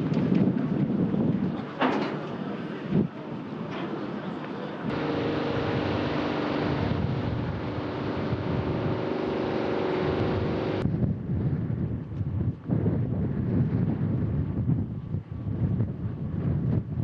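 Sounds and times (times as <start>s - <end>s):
wind on microphone: 0.0s - 1.8s, 4.9s - 17.0s
rocket engines rumbling: 4.7s - 11.4s.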